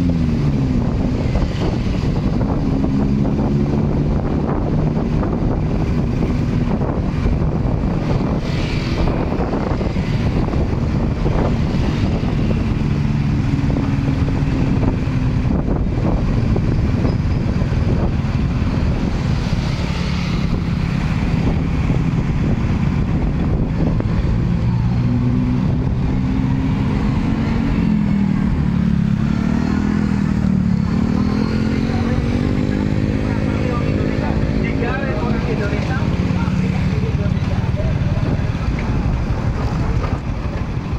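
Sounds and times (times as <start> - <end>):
motorcycle engines running: 0.0 - 40.9
street traffic noise: 0.0 - 40.9.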